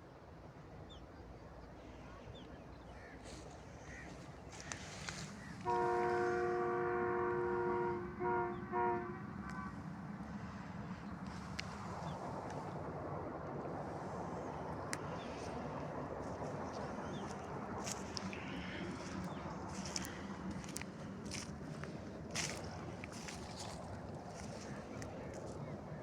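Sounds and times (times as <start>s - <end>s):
low vehicle rumble: 3.5s - 26.0s
two-note horn blasts: 5.6s - 9.7s.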